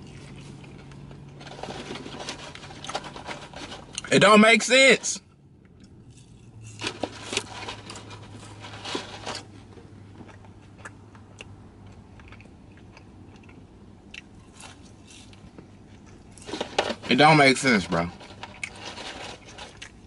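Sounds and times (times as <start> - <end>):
person chewing food: 0.0 - 3.0, 9.4 - 16.6, 18.3 - 20.0.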